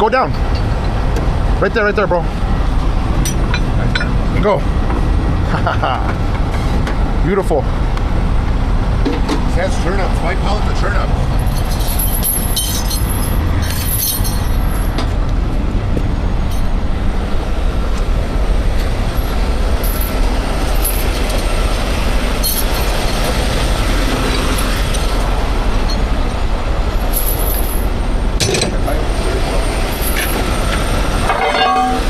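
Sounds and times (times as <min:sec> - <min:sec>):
diesel engine rumbling: 0:00.0 - 0:32.0
metallic clinks: 0:11.4 - 0:15.0, 0:22.4 - 0:23.3.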